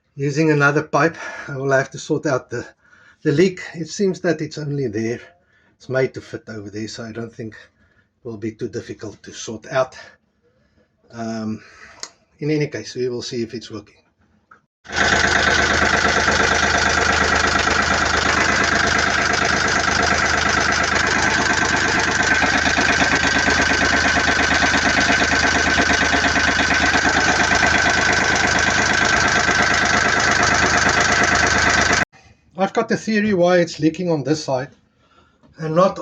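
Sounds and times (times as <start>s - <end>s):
diesel engine idling: 14.9s - 32.0s.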